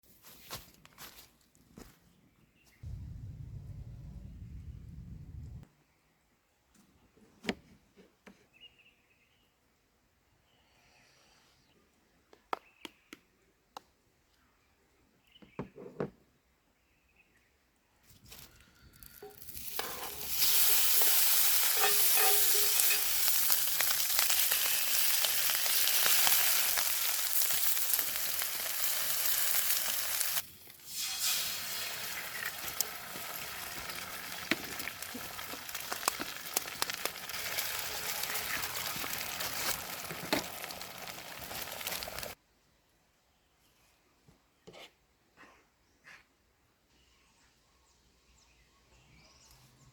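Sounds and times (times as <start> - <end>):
food sizzling in a pan: 19.2 - 42.4
oil popping and spattering: 19.2 - 42.4.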